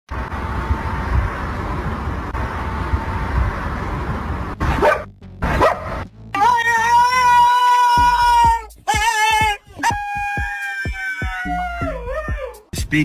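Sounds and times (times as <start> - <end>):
steady background noise: 0.1 - 4.8
dog barking: 4.7 - 6.0.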